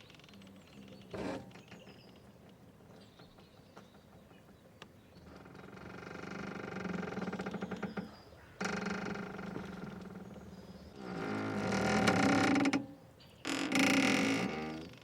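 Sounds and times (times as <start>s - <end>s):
mooring rope creaking: 5.3s - 15.0s.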